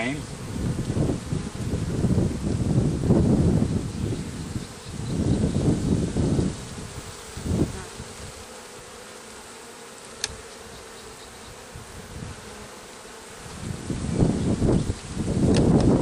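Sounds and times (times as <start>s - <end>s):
wind rumble on microphone: 0.0s - 8.4s, 11.5s - 12.5s, 13.4s - 16.0s
honeybees humming: 0.0s - 16.0s.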